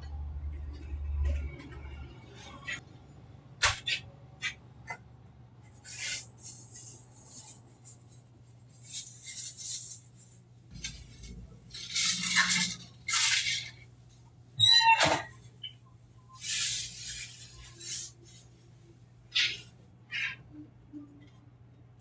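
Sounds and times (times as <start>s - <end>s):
noisy scraping: 8.9s - 13.9s
utensils clicking and clinking: 10.8s - 13.8s.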